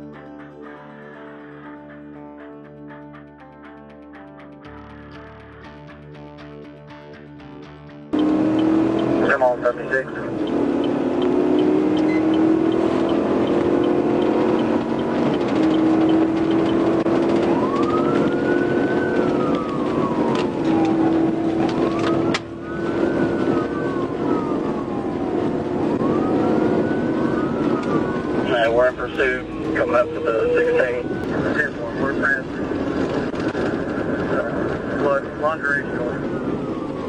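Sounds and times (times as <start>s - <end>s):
engine and road drone: 8.0s - 37.0s
wailing police siren: 8.1s - 37.0s.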